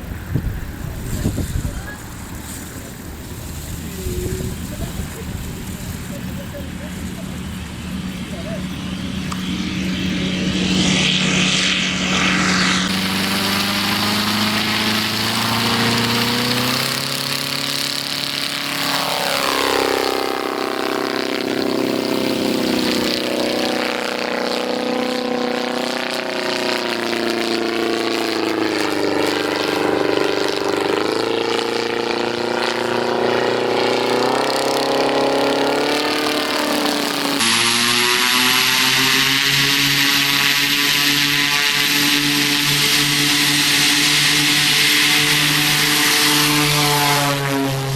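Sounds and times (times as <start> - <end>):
propeller aircraft engine drone: 0.0 - 47.9.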